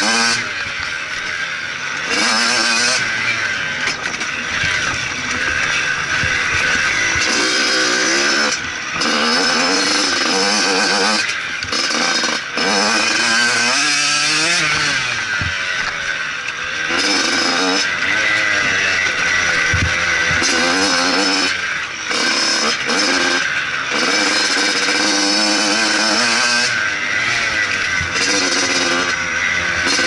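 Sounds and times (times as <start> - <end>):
motocross bike engine revving: 0.0 - 30.0.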